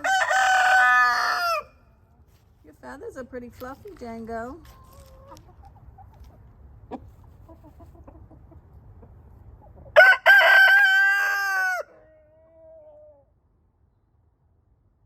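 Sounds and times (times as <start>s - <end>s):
rooster crowing: 0.0s - 1.8s, 10.0s - 12.1s
chickens clucking: 4.6s - 10.0s.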